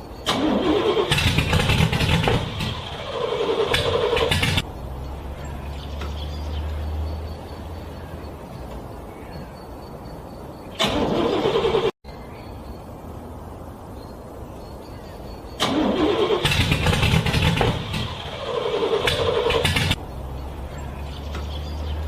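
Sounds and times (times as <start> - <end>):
car engine starter cranking: 0.2 - 4.6, 10.8 - 11.9, 15.6 - 20.0
low engine rumble: 0.2 - 22.0.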